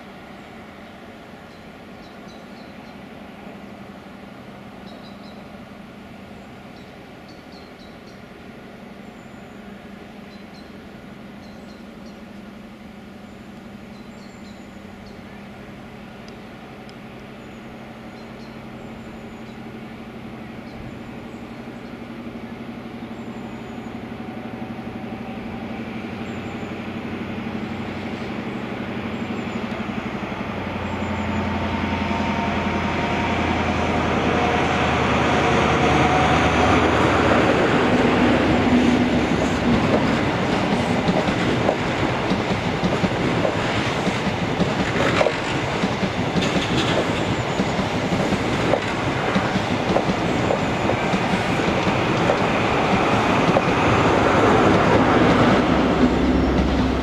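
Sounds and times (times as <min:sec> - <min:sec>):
faint birds chirping: 0:00.0 - 0:31.8
diesel train approaching: 0:00.0 - 0:57.0.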